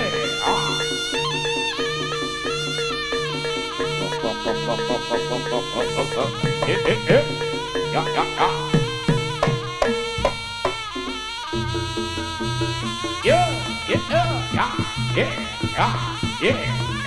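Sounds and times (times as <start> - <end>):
reedy wind melody: 0.0 - 17.0
repeated struck notes: 0.0 - 17.0
sustained metallophone tones: 0.0 - 17.0.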